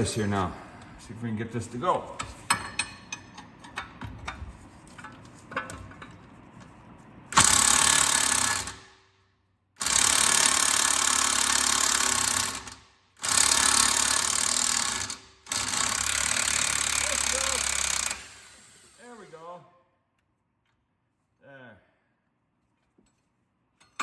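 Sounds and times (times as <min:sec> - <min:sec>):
impact wrench hammering: 0:07.4 - 0:08.9.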